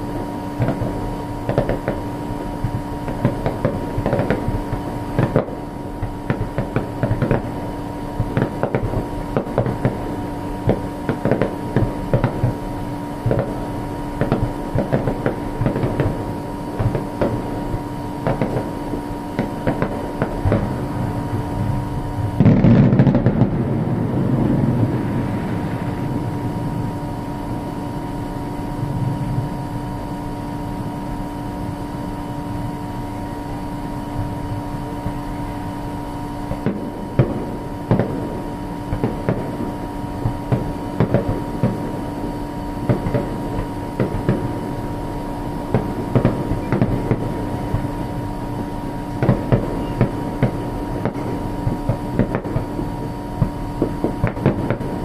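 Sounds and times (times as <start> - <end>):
steady hum: 0.0 - 55.0
firework pops and crackles: 0.5 - 23.7, 36.5 - 44.8, 45.6 - 55.0
firework boom: 19.4 - 27.1.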